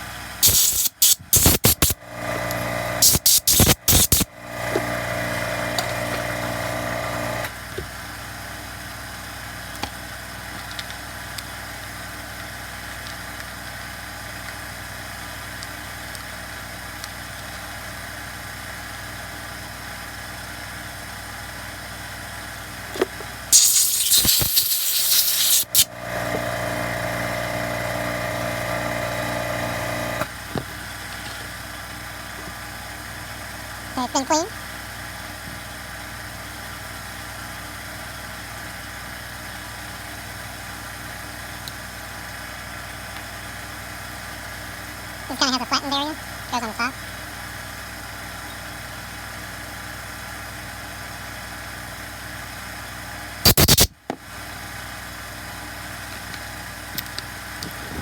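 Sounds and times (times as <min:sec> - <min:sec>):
steady machine hum: 0:01.4 - 0:07.5, 0:25.6 - 0:30.3.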